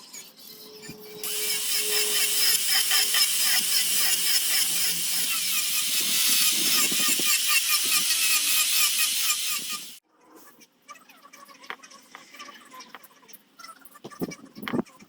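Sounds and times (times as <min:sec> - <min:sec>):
power tool grinding wood: 0:01.2 - 0:10.0.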